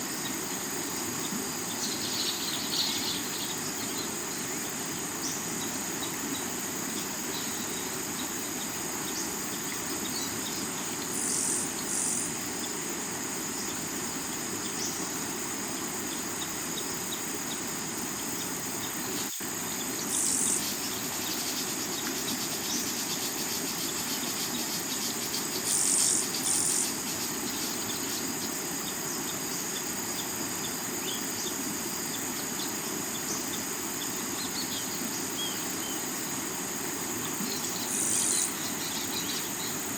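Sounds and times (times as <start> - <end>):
crickets and insects chirping: 0.0 - 39.9.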